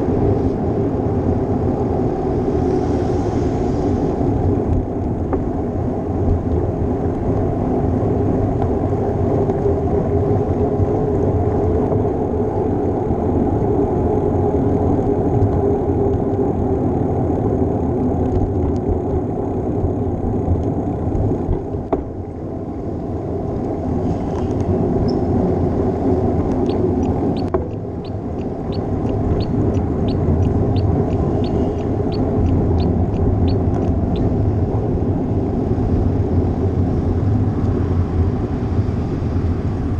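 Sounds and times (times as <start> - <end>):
road rumble: 0.0 - 39.9
wind: 0.0 - 39.9
light ticks: 26.5 - 34.0.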